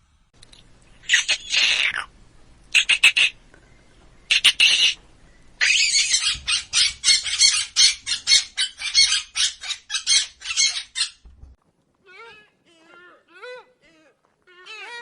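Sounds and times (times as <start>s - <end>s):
animal harsh rasping calls: 2.7s - 3.4s, 4.3s - 5.0s.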